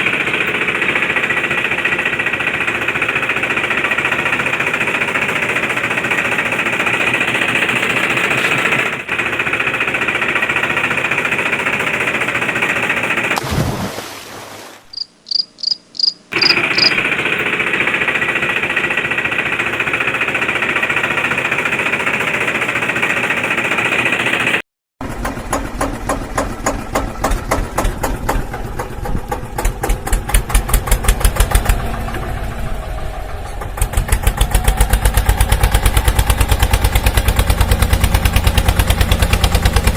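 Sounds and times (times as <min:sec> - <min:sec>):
fast even clicking: 0:15.3 - 0:17.0
toy motor rattling drone: 0:16.0 - 0:17.0.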